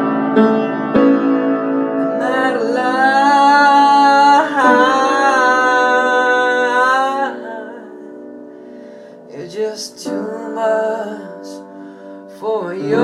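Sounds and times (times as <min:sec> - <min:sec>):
piano chords: 0:00.0 - 0:13.0
man singing: 0:02.0 - 0:08.1, 0:09.3 - 0:13.0.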